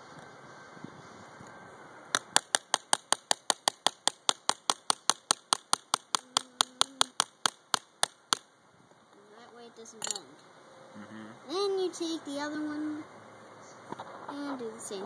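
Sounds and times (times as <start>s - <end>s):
small hammer tapping nail into wood: 2.2s - 8.4s.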